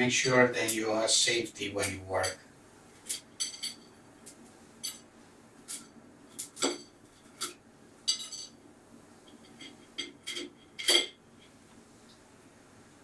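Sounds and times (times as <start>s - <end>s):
metal utensils clinking on pot: 3.1s - 3.9s, 5.7s - 8.6s, 9.4s - 11.2s.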